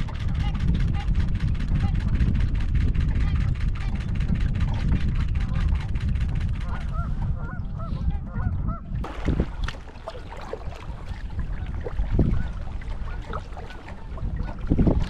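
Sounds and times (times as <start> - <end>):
wind rumbling on microphone: 0.0 - 15.0
waterfowl honking: 6.6 - 15.0.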